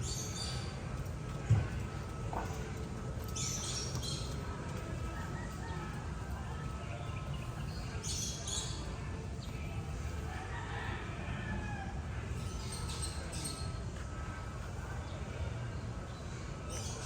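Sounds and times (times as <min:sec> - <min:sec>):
birds chirping: 0:03.2 - 0:09.8.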